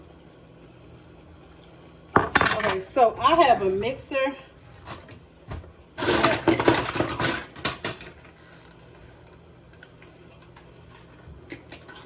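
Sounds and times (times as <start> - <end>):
utensils and dishes clattering: 2.2 - 3.7, 6.0 - 8.2.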